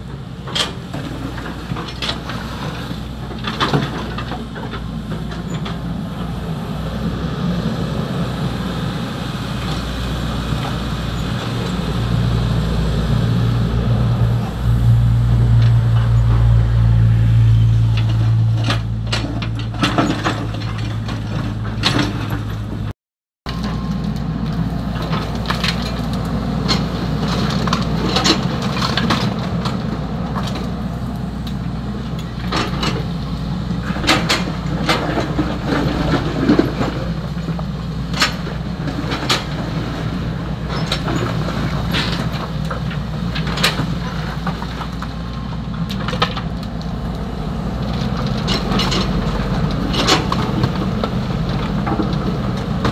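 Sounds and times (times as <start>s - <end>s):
excavator diesel engine running: 0.0s - 22.9s, 23.5s - 52.9s
gravel clacking and rattling: 23.5s - 52.9s.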